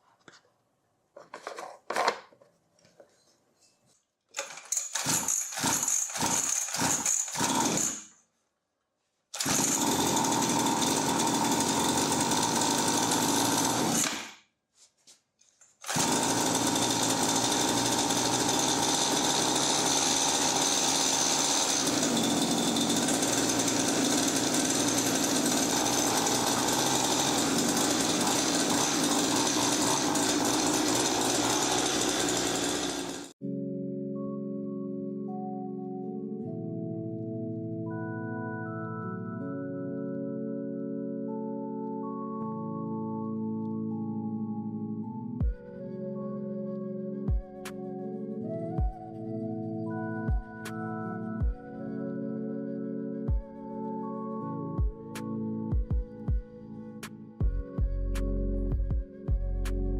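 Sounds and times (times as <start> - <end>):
small engine cranking: 4.4 - 8.1, 9.4 - 14.4, 15.8 - 33.4
two-stroke engine running: 9.4 - 14.1, 15.9 - 33.4.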